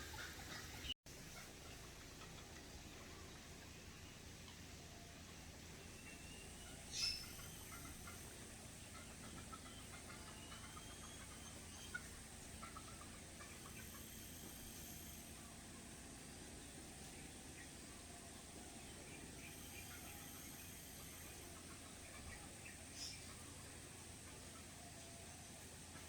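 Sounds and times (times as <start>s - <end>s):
faint bird calls: 0.0s - 26.0s.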